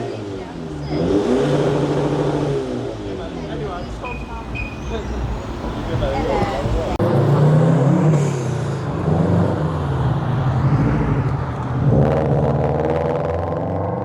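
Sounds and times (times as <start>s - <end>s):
car engine revving: 0.0s - 14.0s
car engines running: 0.0s - 14.0s.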